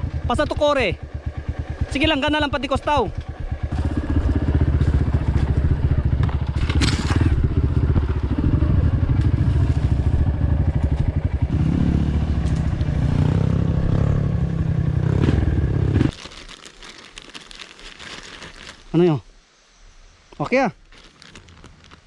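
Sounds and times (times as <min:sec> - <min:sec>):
dirt bike engine running: 0:00.0 - 0:16.1.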